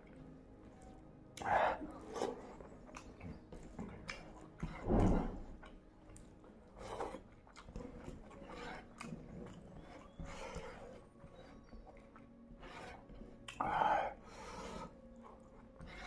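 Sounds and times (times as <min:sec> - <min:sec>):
chewing crispy crumbs: 0:00.0 - 0:16.0.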